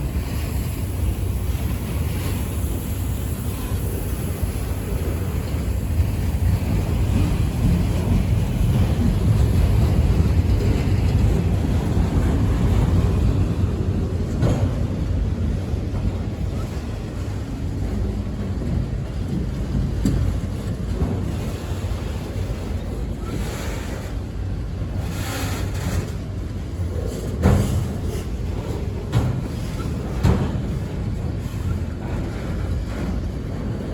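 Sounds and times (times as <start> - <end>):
wind buffeting microphone: 0.0 - 25.0
freight train rumbling past: 0.0 - 33.9.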